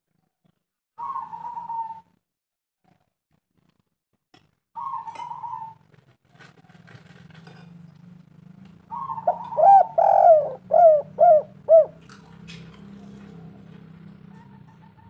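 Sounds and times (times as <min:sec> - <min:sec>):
dove cooing: 0:01.0 - 0:02.0, 0:04.8 - 0:05.8, 0:08.8 - 0:15.0.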